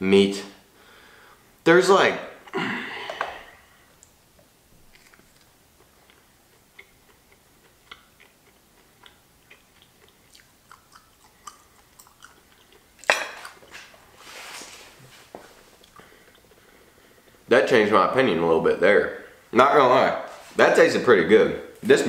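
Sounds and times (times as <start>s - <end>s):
chewing: 4.8s - 14.2s, 15.4s - 16.8s.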